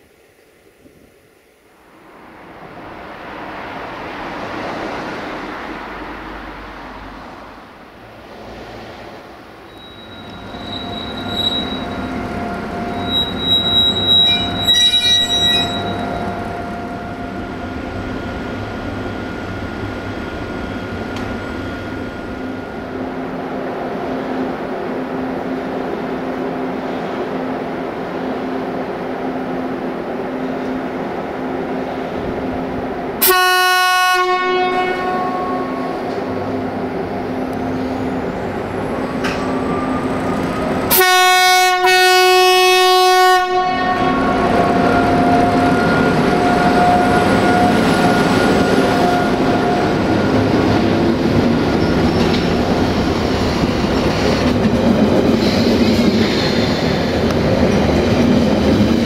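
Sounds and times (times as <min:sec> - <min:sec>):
train rolling into station: 0:00.0 - 0:59.0
train brakes squealing: 0:09.6 - 0:22.9, 0:37.6 - 0:40.9, 0:44.0 - 0:54.3.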